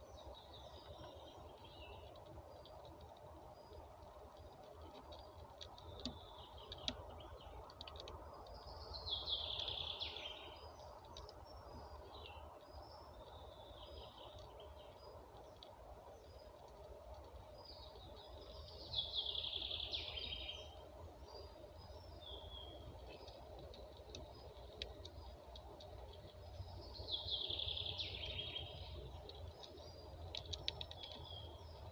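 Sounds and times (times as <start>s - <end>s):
low outdoor hum: 0.0s - 31.9s
songbird singing: 0.0s - 31.9s
bird chirps: 8.4s - 15.2s, 17.5s - 25.4s, 26.0s - 31.9s.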